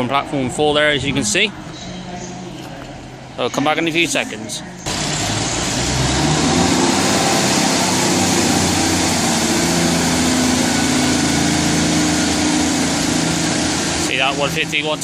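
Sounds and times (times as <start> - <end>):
diesel train engines under load: 0.0 - 15.0
loud rushing noise: 4.9 - 15.0.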